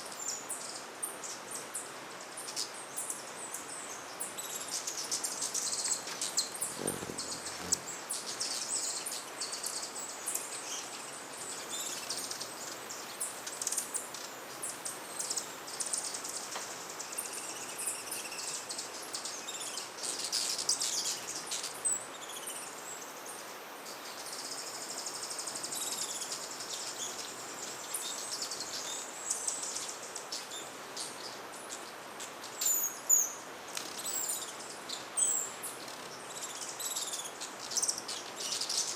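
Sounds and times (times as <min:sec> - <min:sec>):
hummingbirds chipping and twittering: 0:00.2 - 0:23.0.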